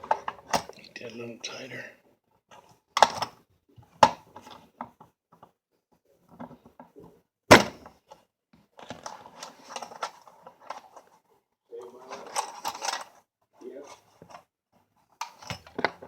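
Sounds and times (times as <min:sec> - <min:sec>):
toy train parts clicking and knocking: 0:12.1 - 0:13.2.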